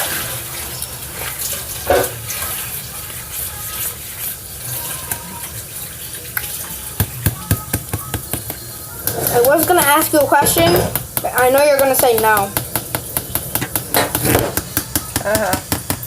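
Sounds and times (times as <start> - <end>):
tap water running into sink: 4.2 - 16.0.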